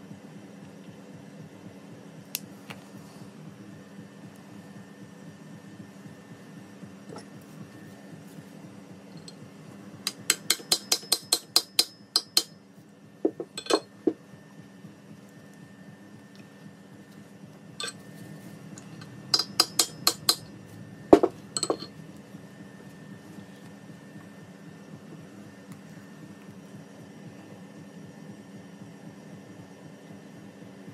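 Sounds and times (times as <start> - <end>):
metal-on-metal tapping: 10.1 - 12.6, 13.4 - 13.9, 19.0 - 20.5, 21.2 - 21.9.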